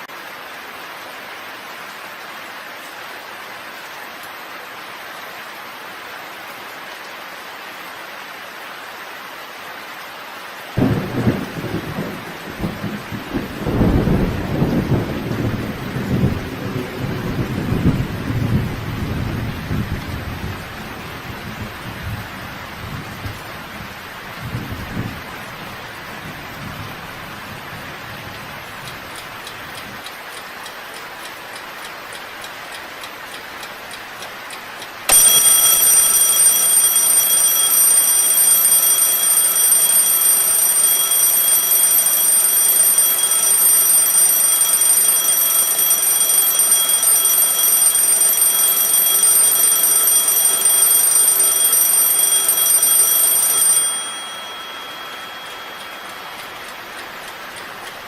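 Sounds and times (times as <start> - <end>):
steady rain: 0.0 - 58.0
thunder rumbles: 10.8 - 28.9
alarm clock ringing: 35.1 - 57.1.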